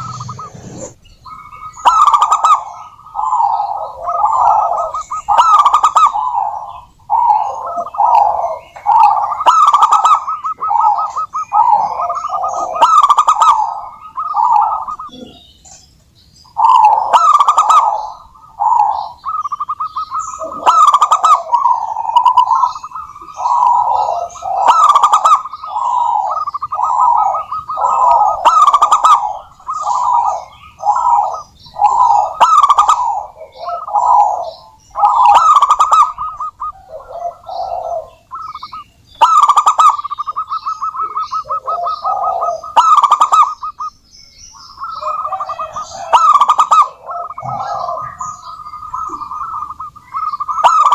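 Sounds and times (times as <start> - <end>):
doves cooing: 0.0 - 15.8, 16.4 - 50.9
faint higher chirps: 17.8 - 50.9.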